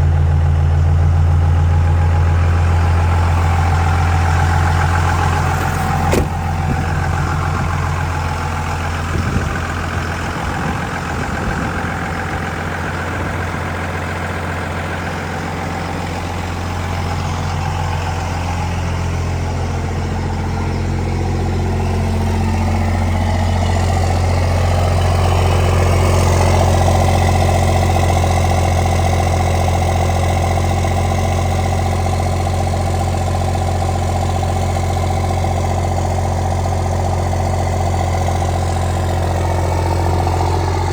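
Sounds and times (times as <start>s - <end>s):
diesel engine idling: 0.0s - 40.9s.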